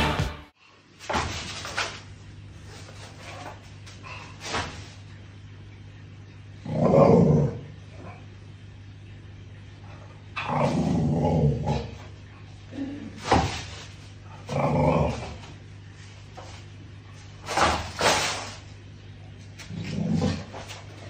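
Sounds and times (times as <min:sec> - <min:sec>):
dog barking and growling: 0:06.6 - 0:08.2, 0:10.4 - 0:12.0, 0:14.3 - 0:15.5, 0:19.6 - 0:20.8.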